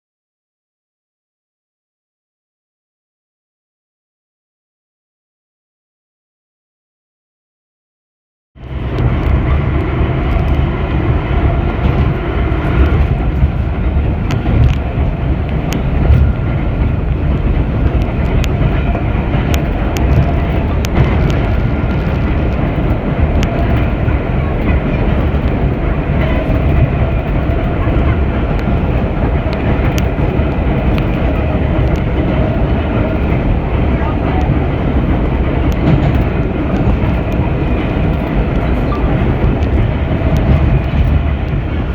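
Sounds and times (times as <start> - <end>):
subway car rumbling: 8.6 - 41.9
clicks from rails: 11.6 - 41.9.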